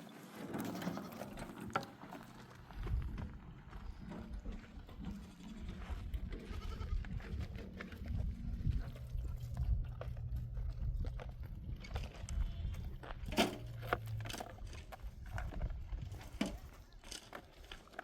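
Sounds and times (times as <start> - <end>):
hoof clicks and knocks: 0.3 - 18.0
sheep bleat: 6.3 - 7.1.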